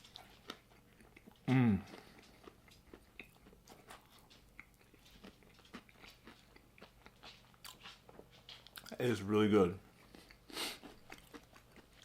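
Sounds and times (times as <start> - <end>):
crunchy chewing: 0.0 - 9.0, 9.9 - 12.0.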